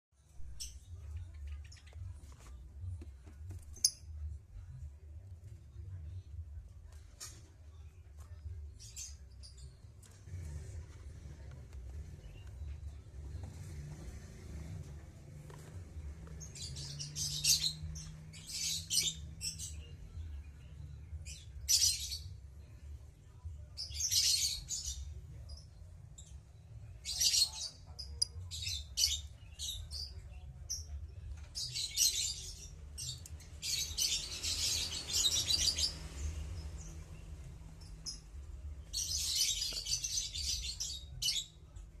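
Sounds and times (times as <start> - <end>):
lovebirds chattering: 27.0 - 41.9.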